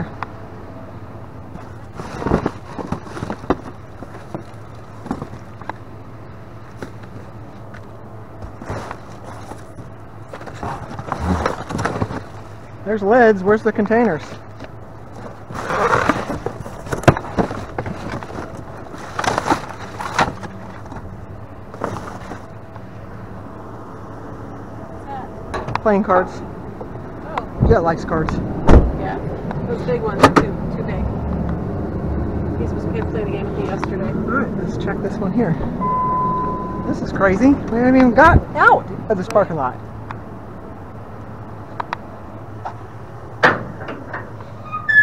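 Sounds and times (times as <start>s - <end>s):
steady low hum: 0.0s - 44.7s
rummaging through trash: 1.6s - 5.7s, 8.4s - 12.6s, 14.2s - 21.1s, 21.7s - 22.6s.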